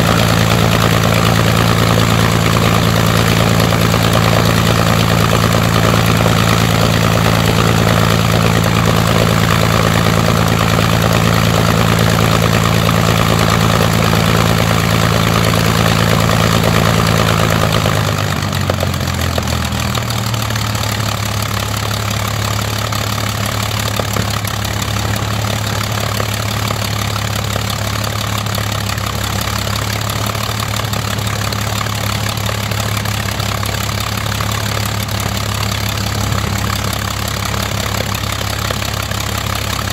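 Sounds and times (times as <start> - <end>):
aero engine running: 0.0 - 39.9.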